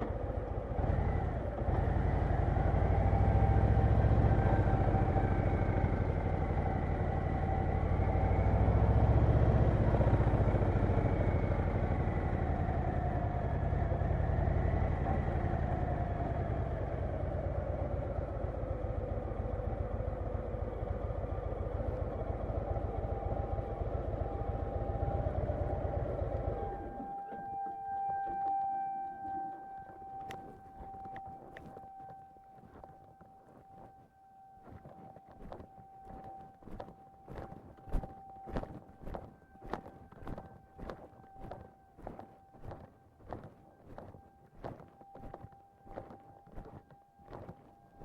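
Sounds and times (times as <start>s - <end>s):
motorcycle engine running: 0.0s - 28.6s
faint falling whine: 0.0s - 48.0s.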